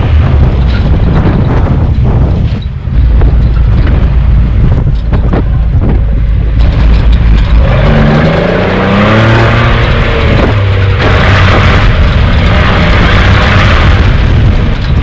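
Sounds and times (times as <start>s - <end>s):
off-road vehicle engine revving: 6.2s - 15.0s.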